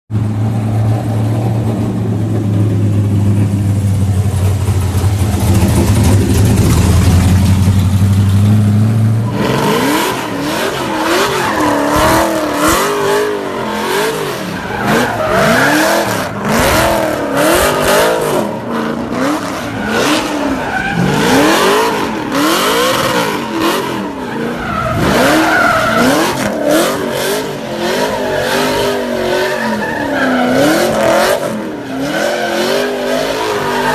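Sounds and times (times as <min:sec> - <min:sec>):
truck engine revving: 0:00.2 - 0:33.9
tyres squealing: 0:09.2 - 0:33.9.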